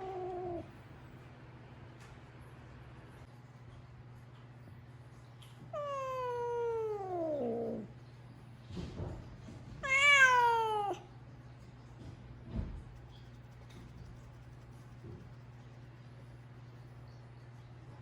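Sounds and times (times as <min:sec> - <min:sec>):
cat meowing: 0:00.0 - 0:00.7, 0:05.8 - 0:07.9, 0:09.8 - 0:11.0.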